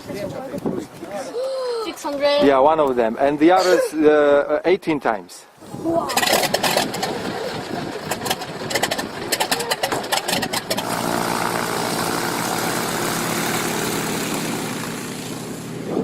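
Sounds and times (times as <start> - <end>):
rapid irregular clattering: 6.1 - 10.9
engine idling: 6.1 - 15.9.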